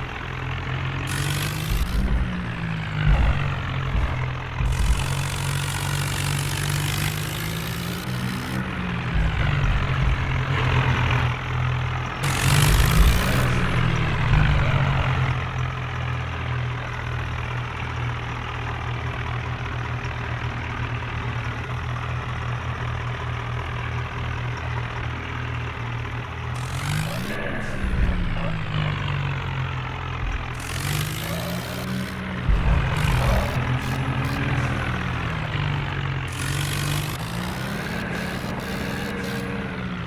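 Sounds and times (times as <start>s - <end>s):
tractor engine revving: 0.0s - 20.0s, 21.3s - 40.0s
loud rushing noise: 1.1s - 11.5s, 12.1s - 15.6s, 30.2s - 40.0s.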